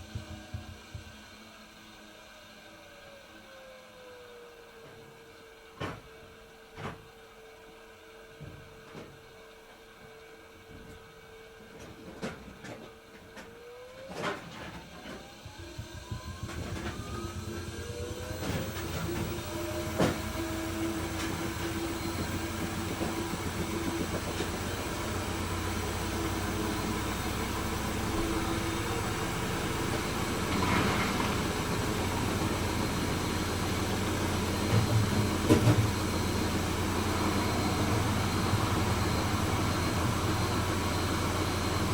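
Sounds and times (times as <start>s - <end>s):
washing machine drum spinning: 0.0s - 1.2s, 15.3s - 41.9s.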